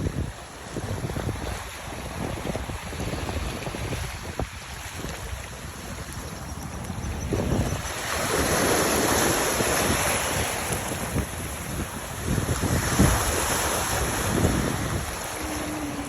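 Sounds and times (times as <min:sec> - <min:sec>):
waves washing: 0:00.0 - 0:16.0
wind buffeting microphone: 0:00.0 - 0:16.0.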